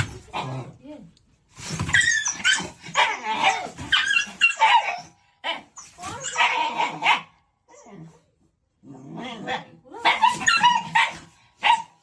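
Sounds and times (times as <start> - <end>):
dog barking and yelping: 1.9 - 7.4, 9.4 - 12.0.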